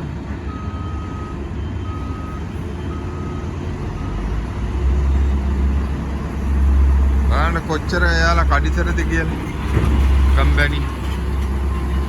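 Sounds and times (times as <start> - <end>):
diesel engines rumbling: 0.0 - 12.0
truck reversing alarm beeping: 0.2 - 5.9.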